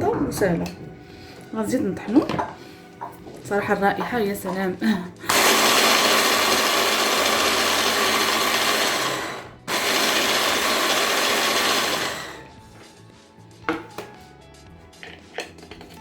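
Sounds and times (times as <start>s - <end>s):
electric grinder grinding: 5.3s - 12.5s.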